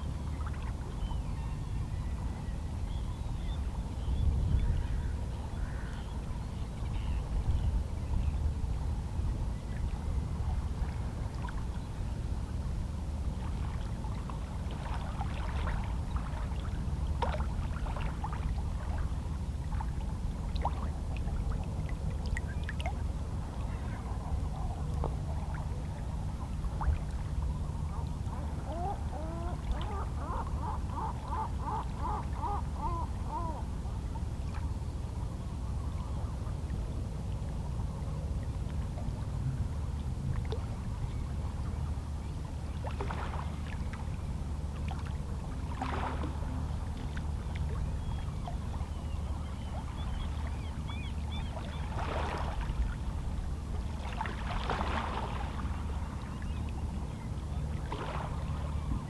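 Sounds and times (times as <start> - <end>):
seabirds calling: 27.9 - 33.8, 48.0 - 52.4.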